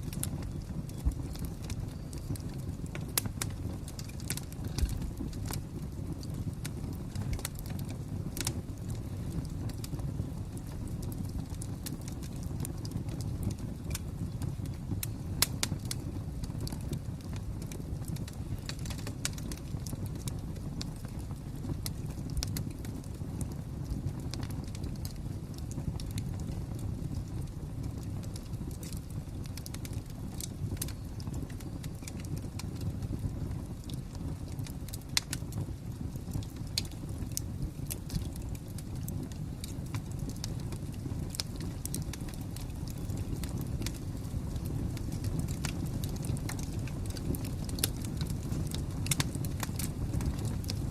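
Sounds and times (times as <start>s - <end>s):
wood fire crackling: 0.0s - 50.9s
sharp pops and snaps: 39.0s - 50.8s.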